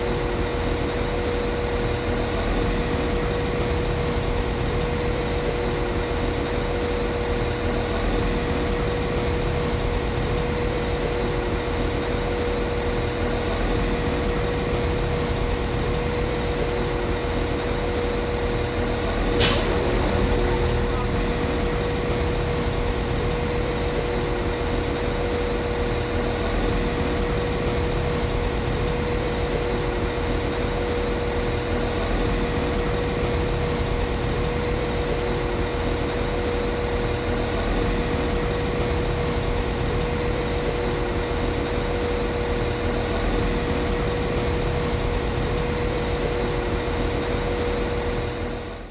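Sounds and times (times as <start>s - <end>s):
diesel train engine idling: 1.9s - 47.3s
sharp click: 19.4s - 19.8s.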